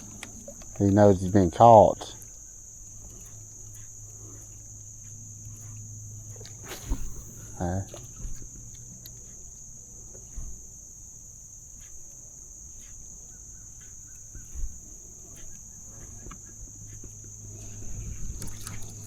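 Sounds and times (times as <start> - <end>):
insects droning: 0.0 - 19.0
low hum: 0.0 - 19.0
soft thump: 6.7 - 7.5.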